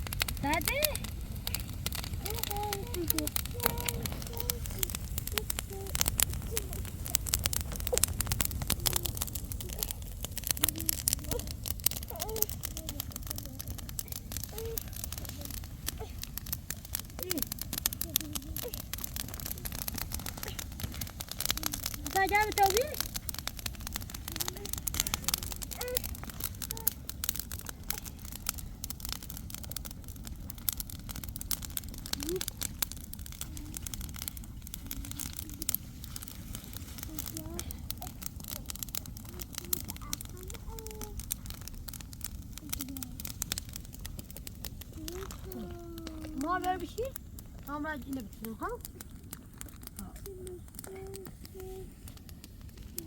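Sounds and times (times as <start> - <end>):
low rumble: 0.0 - 39.2
crackling and popping: 0.0 - 53.0
faint voice: 0.4 - 16.3, 17.0 - 23.0, 24.3 - 27.1, 34.8 - 35.8, 37.0 - 41.3, 42.6 - 43.4, 45.0 - 46.5, 50.0 - 52.0.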